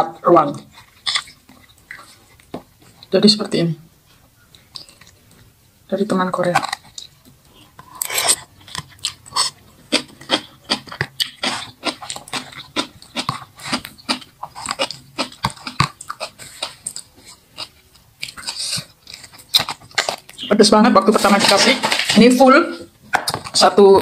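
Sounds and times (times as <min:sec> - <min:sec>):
wet crunchy chewing: 0:00.4 - 0:03.2, 0:04.4 - 0:05.5, 0:06.4 - 0:20.5.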